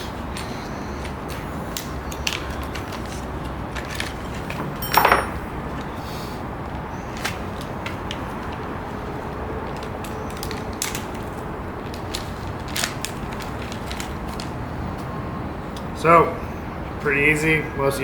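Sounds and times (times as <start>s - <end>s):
small metal parts clinking: 3.8s - 5.5s.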